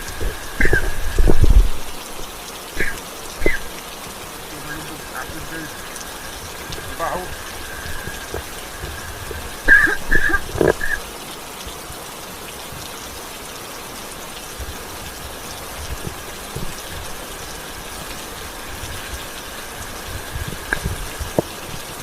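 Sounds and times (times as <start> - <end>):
knocks and squeaks: 0.0 - 1.4, 5.9 - 11.0
steady rain falling: 0.0 - 22.0.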